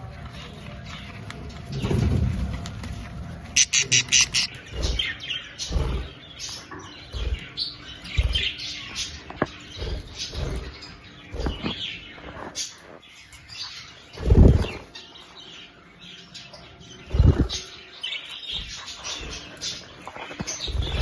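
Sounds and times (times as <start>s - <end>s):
budgerigars chirping: 3.6s - 12.2s.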